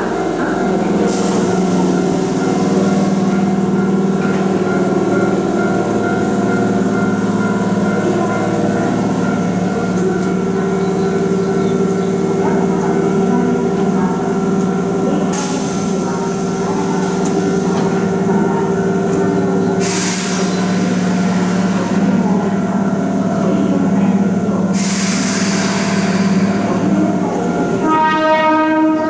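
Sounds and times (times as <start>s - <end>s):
electric train hum: 0.0s - 29.0s
air hiss bursts: 24.8s - 26.7s
train horn: 27.8s - 29.0s.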